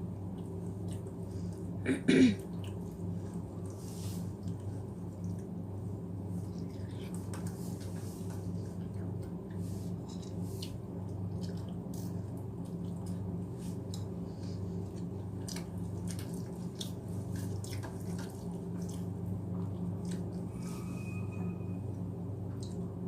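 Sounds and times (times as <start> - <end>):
low hum: 0.0 - 23.0
chewing with wet mouth clicks: 0.2 - 1.6, 2.5 - 3.0, 4.4 - 5.5, 10.2 - 14.1, 14.8 - 20.4, 22.5 - 22.9.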